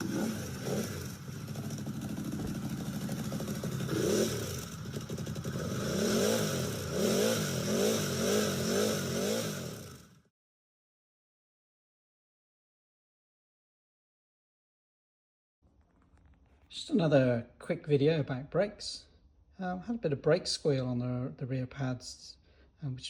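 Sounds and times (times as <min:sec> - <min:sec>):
motorcycle engine revving: 0:00.0 - 0:10.3.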